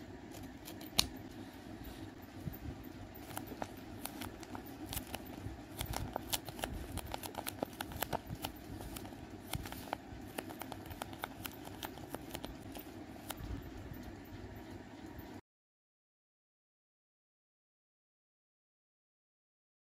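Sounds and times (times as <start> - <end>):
low background hum: 0.0 - 15.4
paper crinkling and crackling: 3.1 - 13.4.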